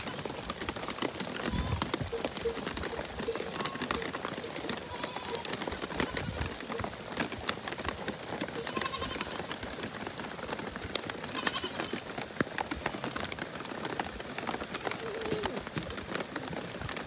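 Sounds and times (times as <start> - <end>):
sheep or goats bleating: 0.0 - 0.5, 1.4 - 6.8, 8.5 - 9.6, 11.2 - 12.1, 12.7 - 13.3
rain pattering: 0.0 - 17.0.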